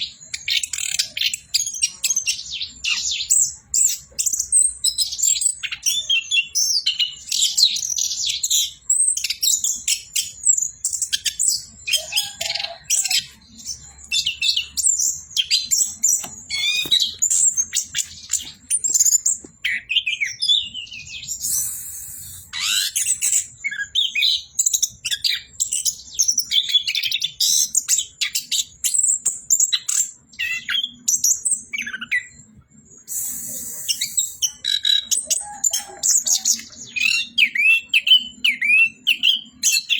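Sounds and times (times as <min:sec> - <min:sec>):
bursts of hiss: 0:33.1 - 0:34.4.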